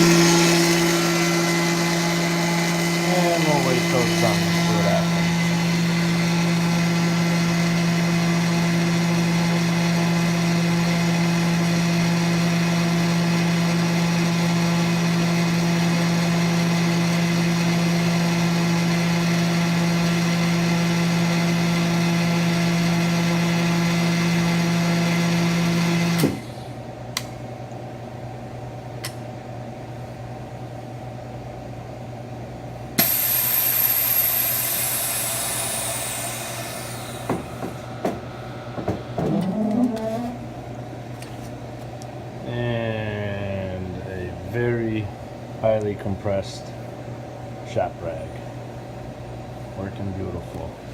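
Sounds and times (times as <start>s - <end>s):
vacuum pump running: 0.0s - 50.9s
air hissing into chamber: 33.0s - 37.9s.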